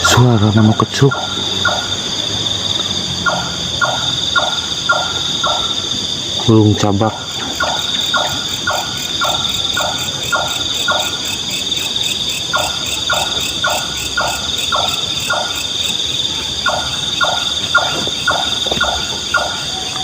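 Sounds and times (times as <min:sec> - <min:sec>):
insects chirring: 0:00.0 - 0:20.0
nightjar calling: 0:00.0 - 0:20.0.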